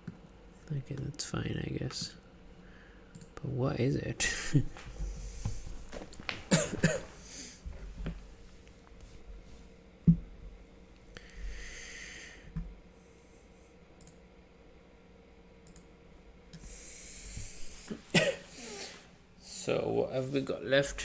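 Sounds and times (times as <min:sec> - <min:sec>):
faint clicks: 0:03.1 - 0:03.4, 0:15.6 - 0:15.9
breaths into a microphone: 0:11.2 - 0:13.5.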